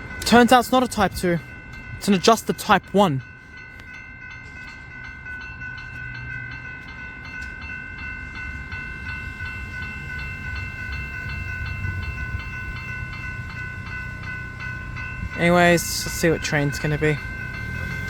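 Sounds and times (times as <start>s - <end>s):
level crossing bells ringing: 0.0s - 18.0s.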